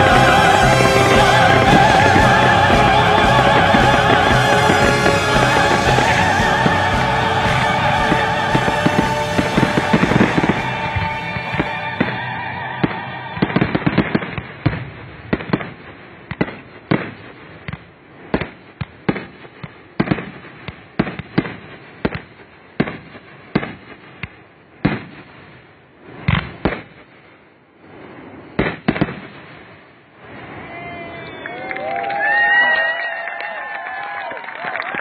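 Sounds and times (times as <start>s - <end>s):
firework shells bursting: 0.0s - 12.3s.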